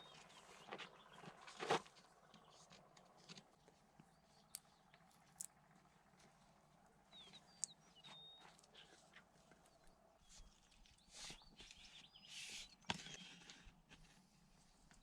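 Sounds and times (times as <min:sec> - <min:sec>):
faint high bird chirps: 0:07.0 - 0:13.7.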